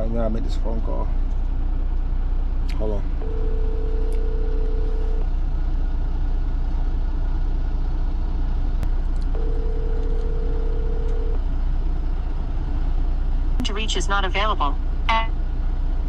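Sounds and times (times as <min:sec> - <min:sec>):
truck engine rumbling: 0:00.0 - 0:16.0
phone ringback tone: 0:03.2 - 0:05.2, 0:09.4 - 0:11.4.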